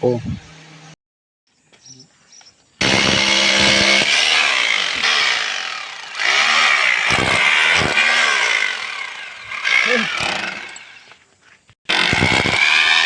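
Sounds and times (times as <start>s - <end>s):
electric rotary hammer running: 2.8s - 11.2s, 11.9s - 13.0s.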